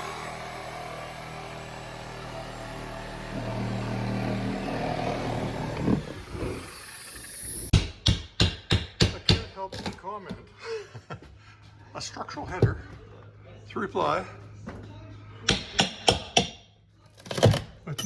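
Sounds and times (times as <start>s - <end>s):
motor humming: 0.0s - 7.7s.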